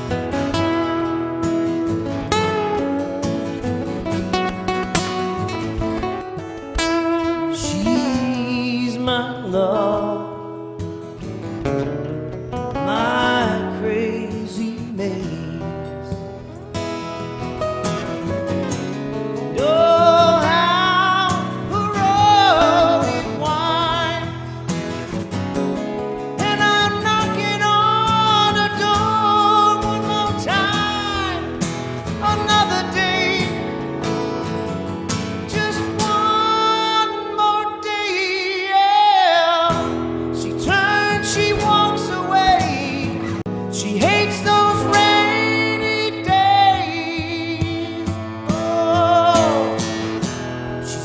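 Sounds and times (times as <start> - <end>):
acoustic guitar chords: 0.0 - 51.0
guitar lead melody: 0.0 - 51.0
person singing wordless notes: 19.1 - 24.7, 26.1 - 51.0.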